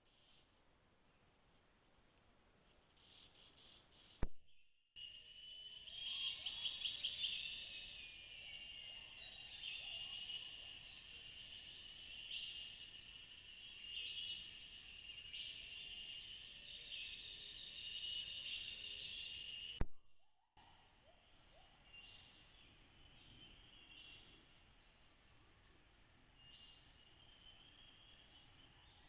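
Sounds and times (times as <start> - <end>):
high insect drone: 5.0 - 19.8, 22.0 - 29.0.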